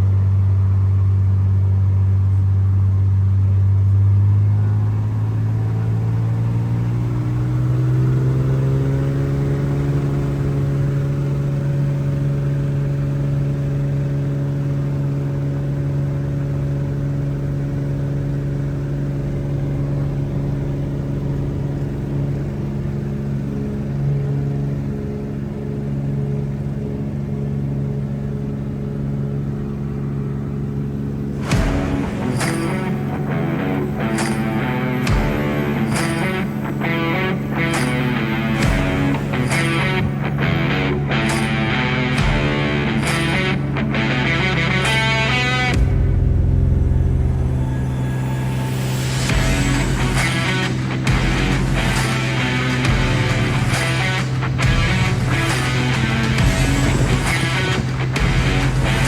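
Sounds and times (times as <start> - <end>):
propeller plane engine droning: 0.0 - 59.0.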